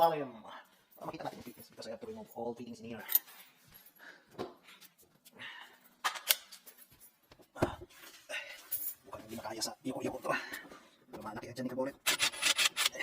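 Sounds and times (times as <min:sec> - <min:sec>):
tools clicking and knocking: 0:06.0 - 0:07.4, 0:12.0 - 0:13.0.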